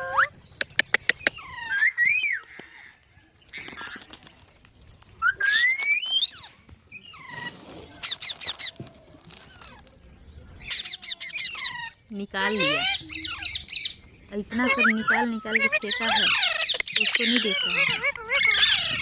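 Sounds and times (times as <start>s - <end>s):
parrot squawks: 10.6s - 13.9s, 14.5s - 19.0s.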